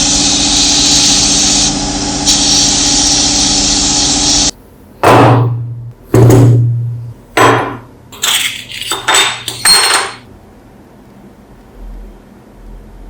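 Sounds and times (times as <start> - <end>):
metal parts knocking and clinking: 8.1 - 10.3.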